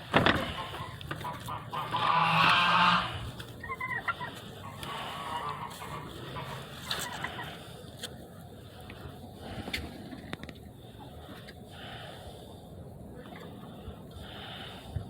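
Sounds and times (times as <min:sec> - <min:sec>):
fowl calling: 0:00.0 - 0:07.8.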